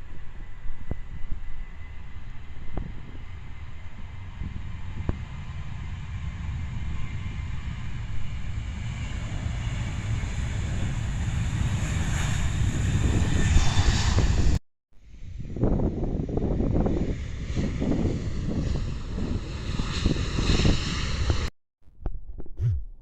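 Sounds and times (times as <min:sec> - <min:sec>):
jet airliner engines rumbling: 0:00.0 - 0:21.5.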